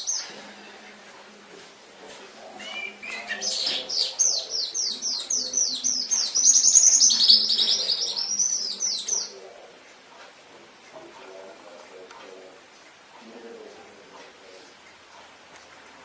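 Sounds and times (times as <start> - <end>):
canary singing: 0.0 - 1.3, 2.4 - 9.6.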